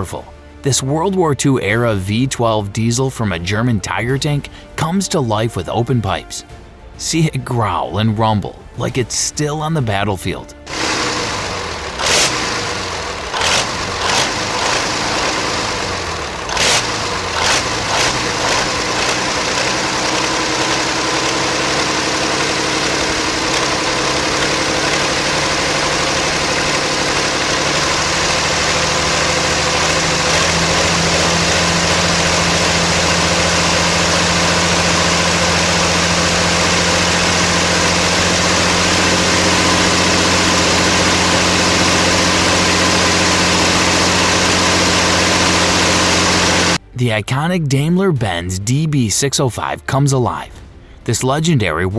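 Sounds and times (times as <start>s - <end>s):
sharp exhaust cracks: 9.9s - 46.8s
tank engine running: 9.9s - 46.8s.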